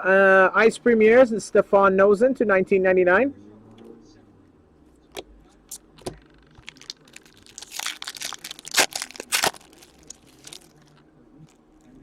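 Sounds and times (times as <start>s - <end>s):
card pack wrapper tearing: 6.6s - 11.0s.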